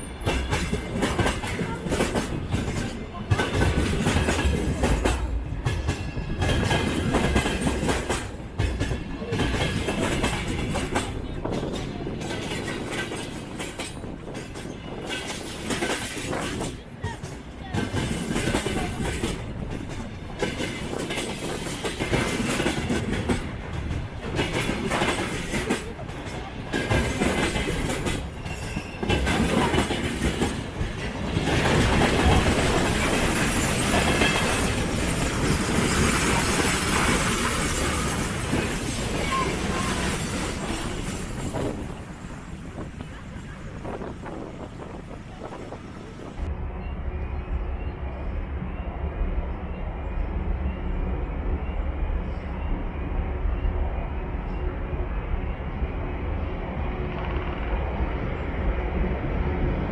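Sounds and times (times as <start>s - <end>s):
train wheels clattering over rail joints: 0.0s - 43.1s.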